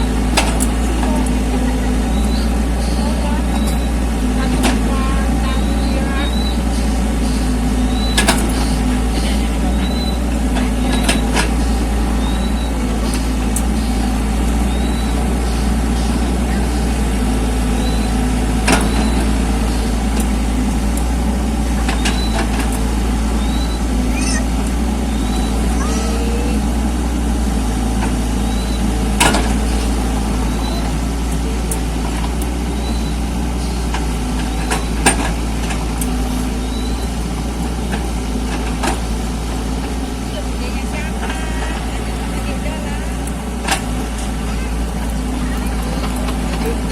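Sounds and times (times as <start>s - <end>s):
diesel engine running: 0.0s - 46.9s
machine knocks and clanks: 8.0s - 11.7s, 17.8s - 22.8s, 27.9s - 46.9s.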